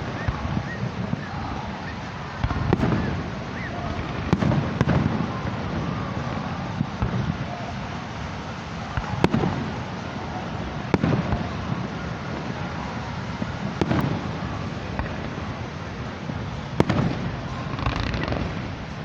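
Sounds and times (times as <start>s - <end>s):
fireworks bangs: 0.0s - 19.0s
low rolling rumble: 13.4s - 19.0s.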